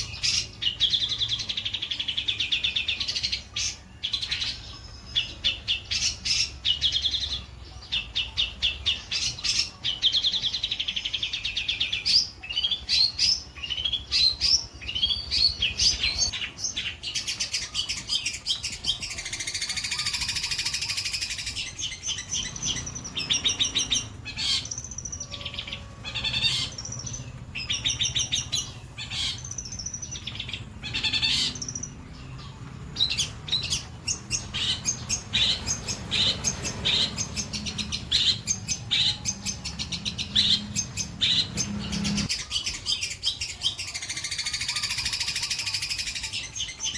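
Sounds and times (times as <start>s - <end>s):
shrike singing chattering trills: 0.0s - 46.9s
harsh rasping bird call: 15.0s - 32.0s, 33.0s - 46.9s.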